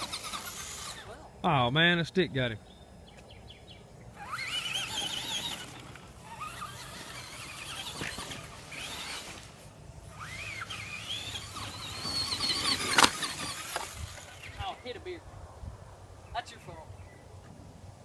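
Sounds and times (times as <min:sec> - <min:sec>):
electric toy truck motor whining: 0:00.0 - 0:01.3, 0:04.1 - 0:14.7.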